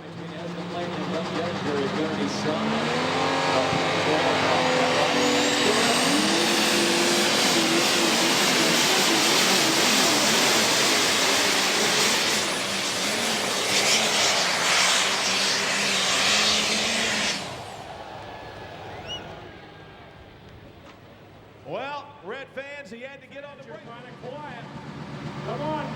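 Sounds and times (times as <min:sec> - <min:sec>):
diesel tractor engine under load: 0:00.0 - 0:21.7, 0:23.7 - 0:25.9
high whistle: 0:18.8 - 0:19.6.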